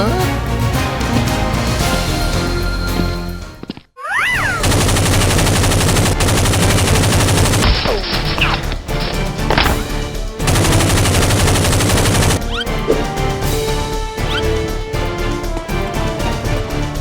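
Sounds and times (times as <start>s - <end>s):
background music: 0.0s - 3.7s, 4.4s - 17.0s
rapid automatic gunfire: 4.6s - 12.4s.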